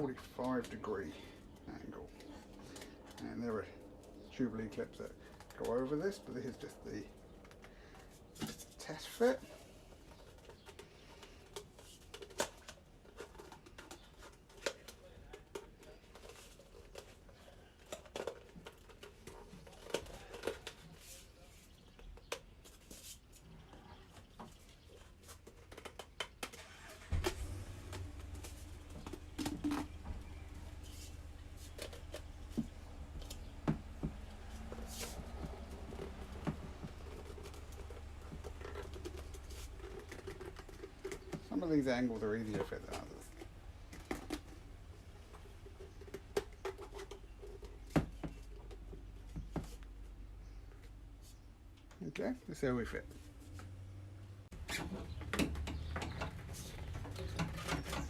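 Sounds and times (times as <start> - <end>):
plastic pipes knocking and rubbing: 27.8 - 49.9, 54.5 - 58.0
pipes knocking and clicking: 28.2 - 30.5, 54.5 - 58.0.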